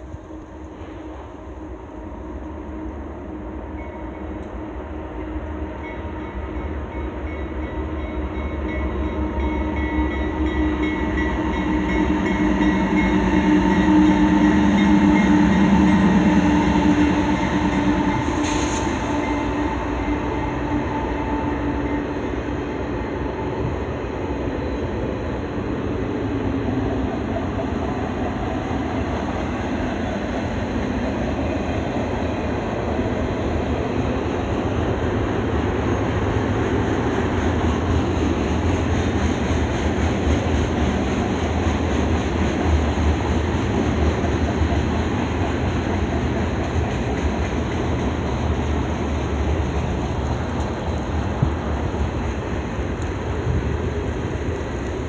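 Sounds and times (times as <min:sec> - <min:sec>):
locomotive engine drone: 0:00.0 - 0:55.0
freight cars rumbling: 0:15.6 - 0:55.0.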